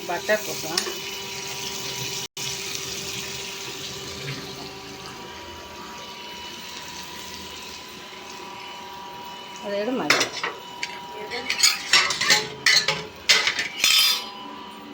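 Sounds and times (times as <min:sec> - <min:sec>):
butter sizzling in a pan: 0:00.0 - 0:11.8.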